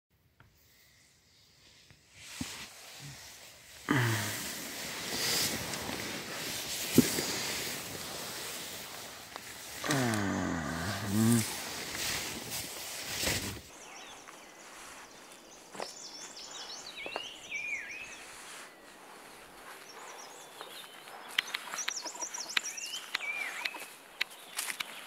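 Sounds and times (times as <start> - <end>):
bird song with sliding whistles: 15.8 - 19.0, 19.7 - 25.0.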